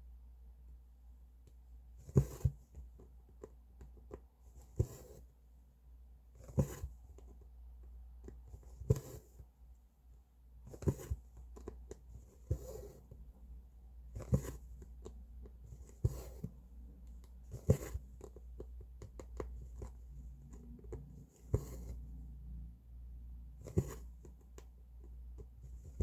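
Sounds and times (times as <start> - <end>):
needle and thread through fabric: 2.0 - 5.3, 6.4 - 7.5, 10.6 - 22.2, 23.6 - 26.0.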